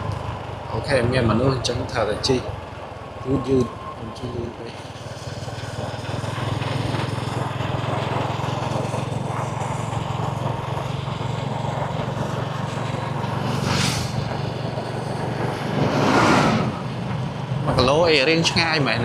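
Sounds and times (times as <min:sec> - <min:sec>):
small engine running: 0:00.0 - 0:19.0
brief hiss: 0:13.6 - 0:14.1.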